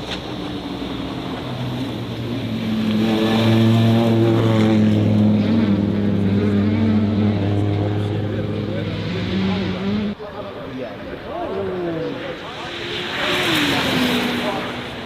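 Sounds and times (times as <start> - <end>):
race car engine droning: 0.0 - 10.4, 11.0 - 15.0.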